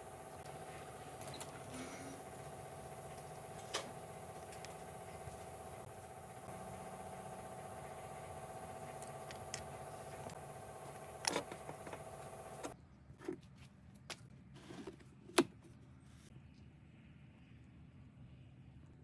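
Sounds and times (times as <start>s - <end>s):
motorcycle engine running: 0.0s - 12.8s.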